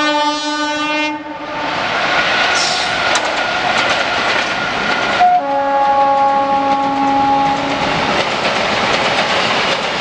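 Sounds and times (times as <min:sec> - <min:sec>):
locomotive horn: 0:00.0 - 0:01.8, 0:05.2 - 0:07.9
freight train rumbling past: 0:00.0 - 0:10.0
train wheels clicking on rail joints: 0:02.0 - 0:10.0.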